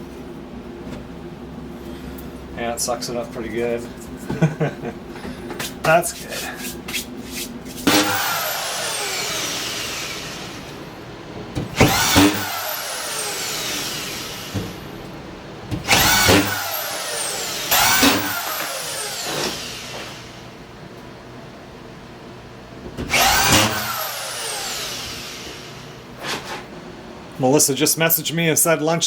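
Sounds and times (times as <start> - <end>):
power drill whining: 7.8 - 10.8, 11.7 - 15.1, 15.9 - 20.5, 23.0 - 26.0.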